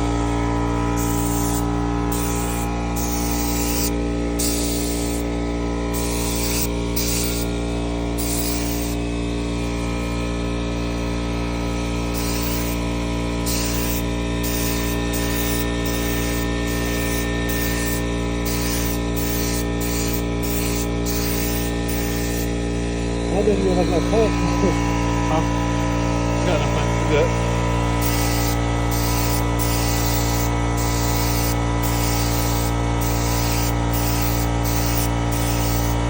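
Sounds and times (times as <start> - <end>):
air compressor humming: 0.0 - 36.0
paint spray gun hissing: 0.9 - 9.1, 12.1 - 22.8, 27.9 - 36.0.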